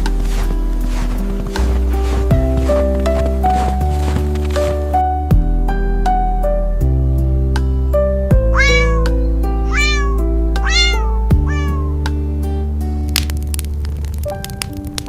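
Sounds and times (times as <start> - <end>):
background music with deep bass: 0.0 - 15.0
cat meowing: 8.5 - 12.0.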